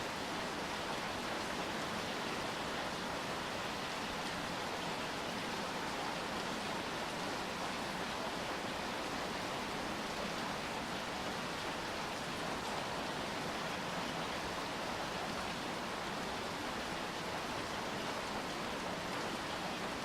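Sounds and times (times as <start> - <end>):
rain on hard surfaces: 0.0 - 20.0.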